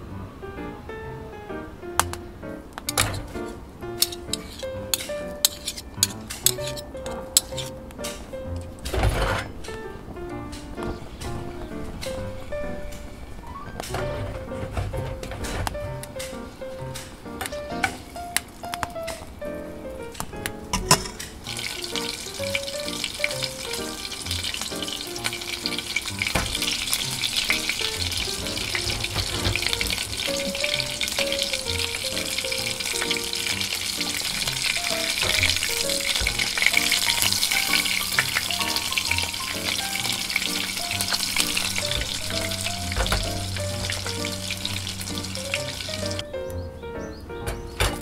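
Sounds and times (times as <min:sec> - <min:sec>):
wooden spatula scraping pan: 0:02.9 - 0:08.2, 0:09.0 - 0:09.7
meatballs sizzling in oil: 0:21.4 - 0:46.2.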